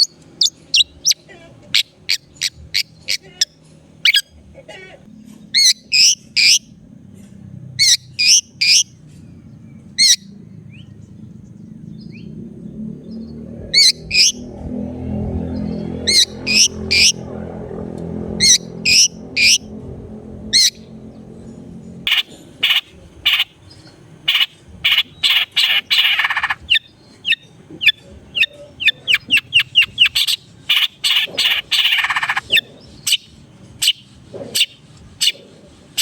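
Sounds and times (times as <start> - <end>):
harsh rasping bird calls: 0.0 - 6.9, 7.7 - 36.0
shrike calling: 11.8 - 34.0.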